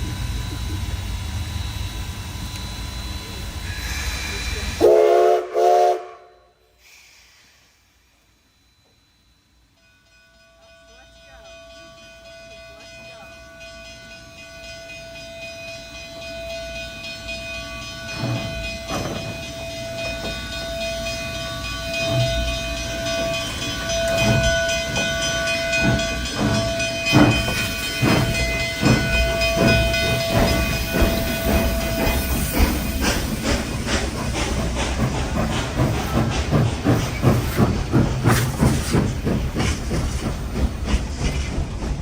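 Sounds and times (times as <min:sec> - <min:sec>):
steam locomotive exhaust chuffs: 0:00.0 - 0:08.5, 0:13.6 - 0:42.0
long steady whistle tone: 0:00.0 - 0:12.4.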